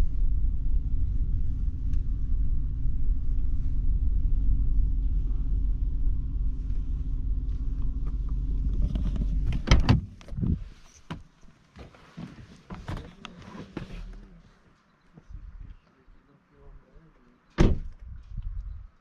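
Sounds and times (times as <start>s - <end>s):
vehicle rumbling: 0.0s - 19.0s
knocks and clunks: 7.8s - 11.4s.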